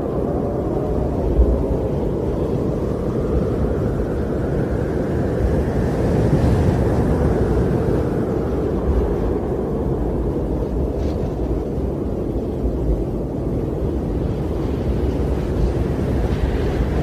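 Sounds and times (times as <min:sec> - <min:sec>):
wind blowing with low rumble: 0:00.0 - 0:17.0.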